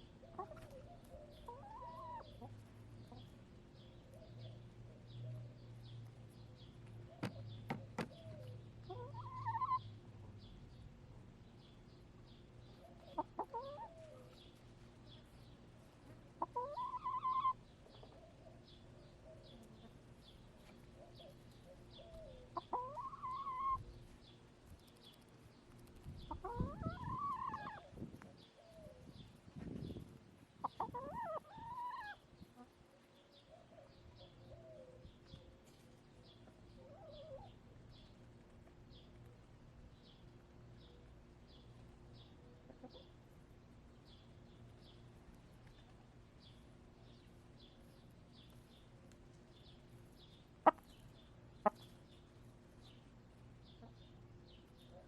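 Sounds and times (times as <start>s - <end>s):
hens clucking and calling: 0.2s - 3.4s, 7.2s - 9.9s, 12.8s - 14.4s, 16.3s - 18.5s, 20.9s - 23.9s, 26.2s - 28.0s, 30.6s - 32.7s, 50.6s - 51.0s, 51.6s - 52.0s.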